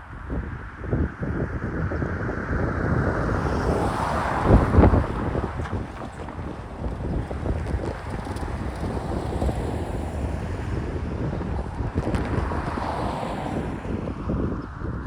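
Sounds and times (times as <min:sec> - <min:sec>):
wind buffeting microphone: 0:00.0 - 0:15.0
freight train rumbling: 0:03.0 - 0:13.7.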